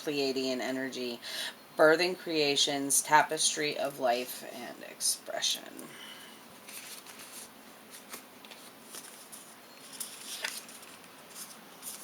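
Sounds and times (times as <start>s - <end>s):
cards rustling: 6.6s - 12.0s.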